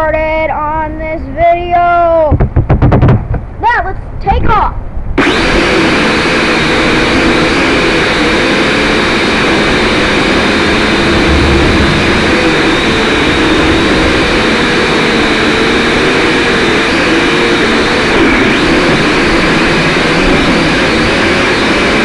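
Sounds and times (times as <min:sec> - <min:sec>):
drone buzzing whine: 0:05.2 - 0:22.0.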